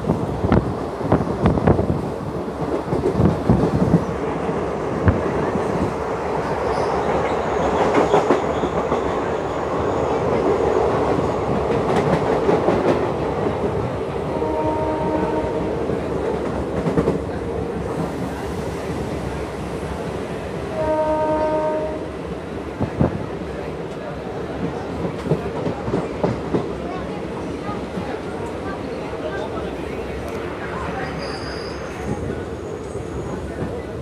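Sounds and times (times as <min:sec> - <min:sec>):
train wheels rumbling on rails: 0:00.0 - 0:34.0
faint train horn: 0:14.3 - 0:16.0, 0:20.7 - 0:22.1.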